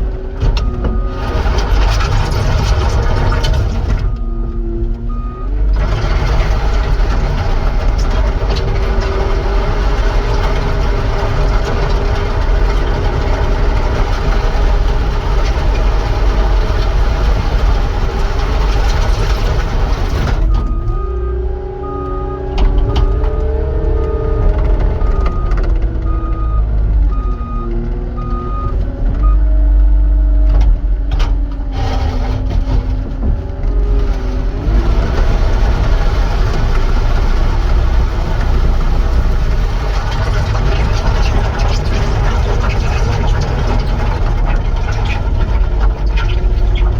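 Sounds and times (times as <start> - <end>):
diesel engine working: 0.0 - 46.9
backup alarm beeping: 4.0 - 5.7, 20.5 - 29.5.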